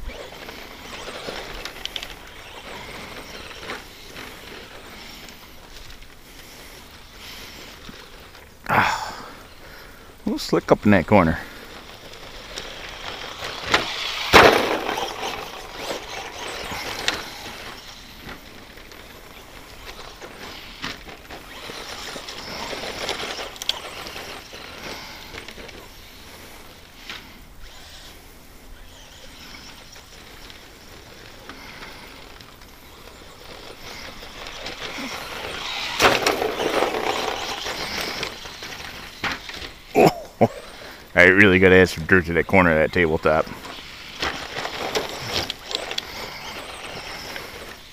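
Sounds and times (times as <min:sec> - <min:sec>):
tyre and dirt noise: 0:00.0 - 0:47.9
rc truck landing knocks: 0:13.5 - 0:17.6.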